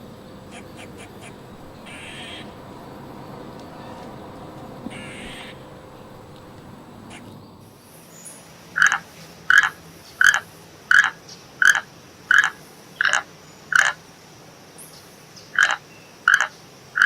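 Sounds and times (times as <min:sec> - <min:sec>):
animal calling: 0:00.0 - 0:07.7.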